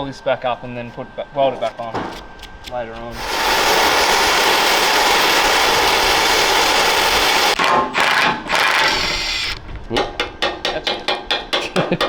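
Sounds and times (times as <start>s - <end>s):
power tool hissing on steel: 3.1s - 7.6s.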